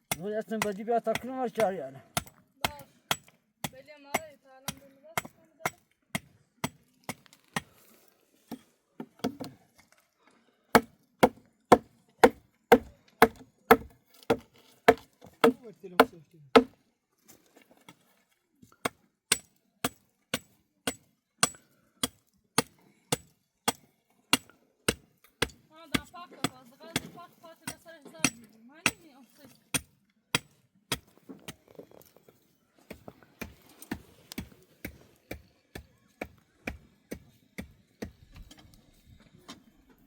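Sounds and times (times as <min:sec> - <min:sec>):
hand tool hard strikes: 0:10.8 - 0:16.7.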